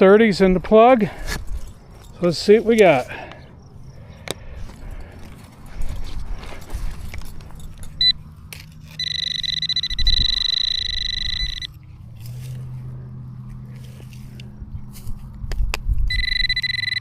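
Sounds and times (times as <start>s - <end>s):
scraping and digging in dirt: 0.0s - 16.0s
metal detector steady high tone: 7.9s - 8.2s, 8.9s - 11.8s, 16.1s - 17.0s
metal detector beep: 8.0s - 8.2s, 8.9s - 11.8s, 16.1s - 17.0s.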